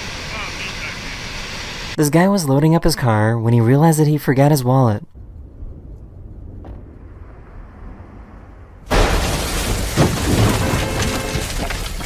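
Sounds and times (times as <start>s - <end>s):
thump: 6.6s - 6.9s.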